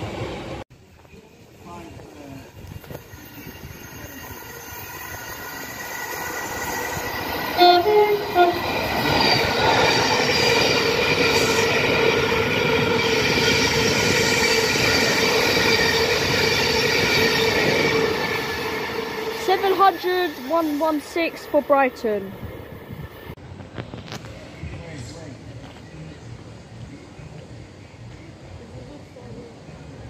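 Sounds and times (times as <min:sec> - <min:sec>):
electric train passing with whine: 0:00.0 - 0:30.0
train horn toots: 0:07.6 - 0:09.2.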